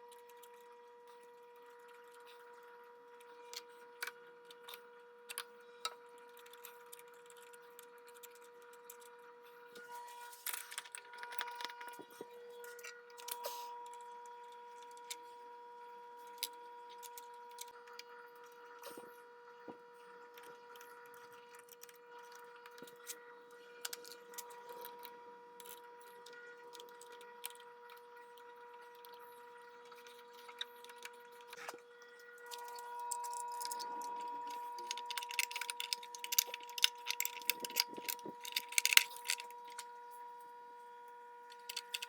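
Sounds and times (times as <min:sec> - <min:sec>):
faint high hum: 0:00.0 - 0:42.0
small metal parts clicking: 0:32.4 - 0:39.8, 0:41.5 - 0:42.0.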